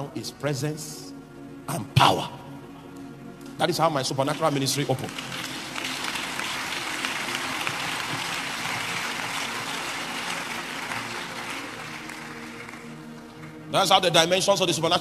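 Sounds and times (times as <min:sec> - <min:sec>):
crowd applauding: 0:04.2 - 0:14.3.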